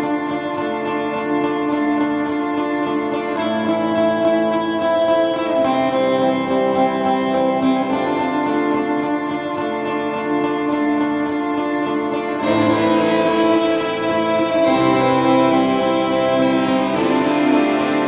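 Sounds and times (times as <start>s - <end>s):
guitar background music: 12.3s - 18.0s.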